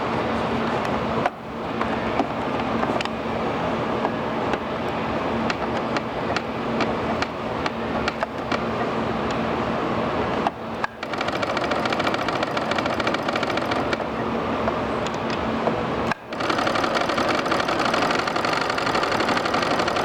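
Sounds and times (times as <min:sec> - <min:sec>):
sewing machine stitching: 0:11.0 - 0:14.0, 0:16.2 - 0:20.0.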